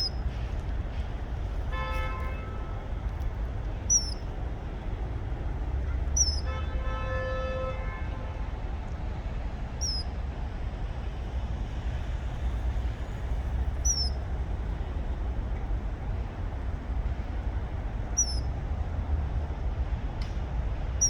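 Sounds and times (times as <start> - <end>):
steady low rumble: 0.0 - 6.9, 8.2 - 21.0
held horn-like tone: 1.7 - 3.0
kingfisher shrill whistled calls: 3.9 - 4.3, 6.2 - 6.5, 9.8 - 10.1, 13.8 - 14.2, 18.2 - 18.5.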